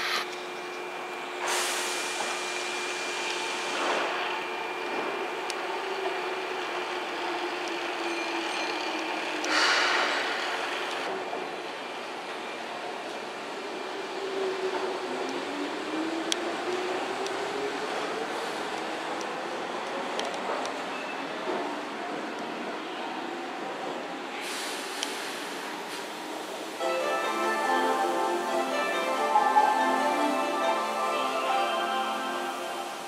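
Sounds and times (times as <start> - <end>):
loud hiss: 1.4 - 3.8, 24.4 - 29.4
electric train humming: 25.4 - 33.0.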